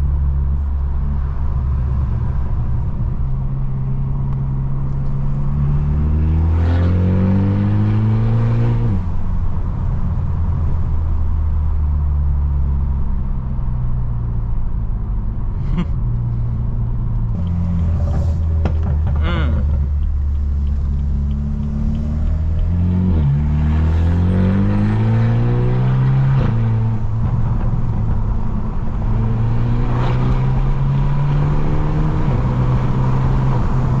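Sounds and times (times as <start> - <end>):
car exhaust drone: 8.9 - 29.6.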